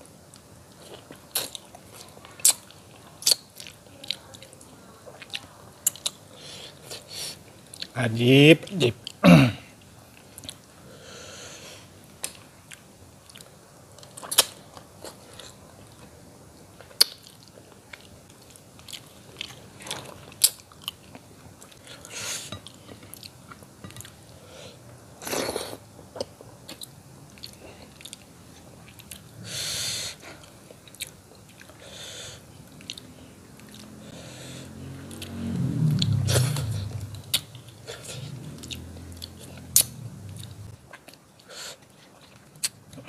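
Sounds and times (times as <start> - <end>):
chewing with wet smacks: 26.0 - 29.3, 30.4 - 31.8, 32.7 - 33.9, 36.0 - 43.0.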